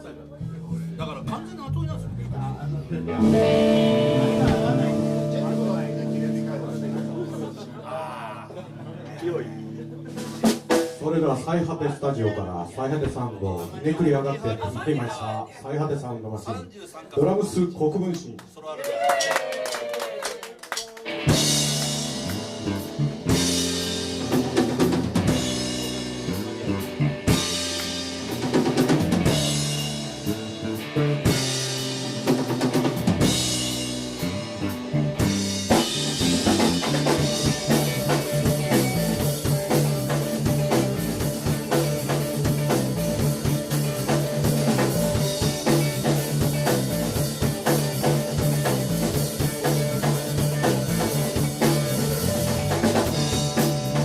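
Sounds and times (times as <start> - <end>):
repeating bass line: 3.0 - 8.0, 21.3 - 54.0
drum kit playing: 3.0 - 11.4, 20.8 - 54.0.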